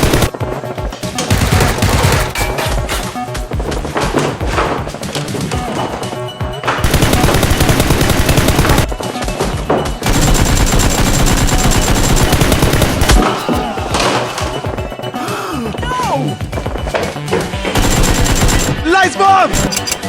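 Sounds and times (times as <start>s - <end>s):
machine-gun fire: 0.0s - 0.4s, 6.8s - 8.9s, 10.0s - 13.4s, 17.8s - 18.8s
background music: 0.0s - 20.0s.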